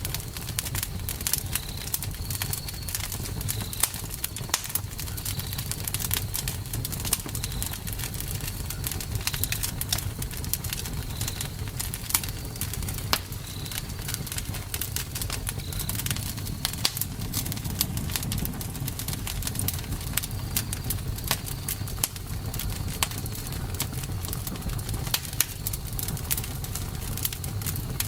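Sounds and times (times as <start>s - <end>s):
campfire wood crackling and popping: 0.0s - 28.0s
low rumble of flames: 0.0s - 28.0s.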